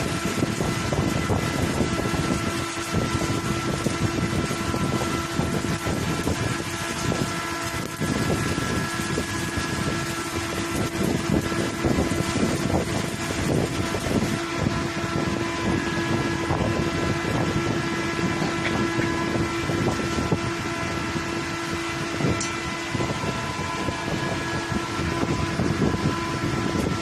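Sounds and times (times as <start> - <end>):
machine hum: 0.0 - 27.0
welding arc crackling: 0.0 - 27.0.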